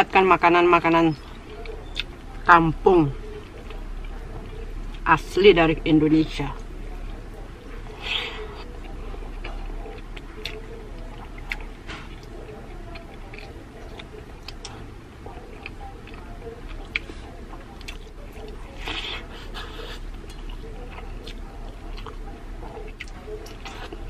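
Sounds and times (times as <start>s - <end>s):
person chewing food: 7.0s - 24.0s.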